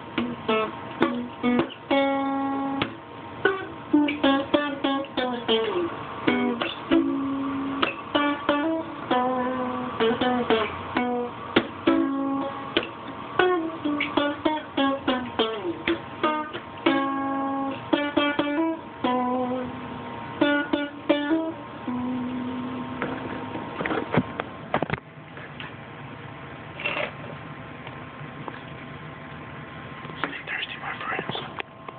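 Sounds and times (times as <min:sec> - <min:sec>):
solo guitar playing: 0:00.0 - 0:23.4.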